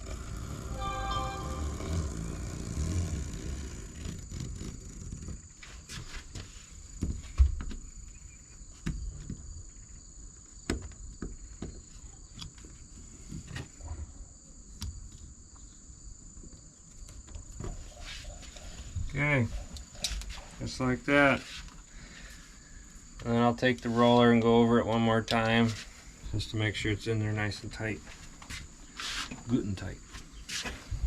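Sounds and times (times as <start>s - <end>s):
steady high-pitched tone: 0.7s - 2.2s.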